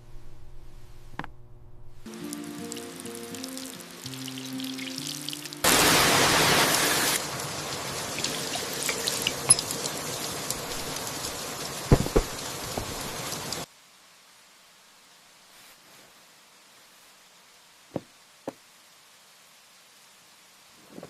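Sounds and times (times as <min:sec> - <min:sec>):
rain falling: 0:02.1 - 0:15.5
water dripping: 0:02.2 - 0:05.8, 0:07.2 - 0:13.7
low knocks: 0:11.9 - 0:13.0.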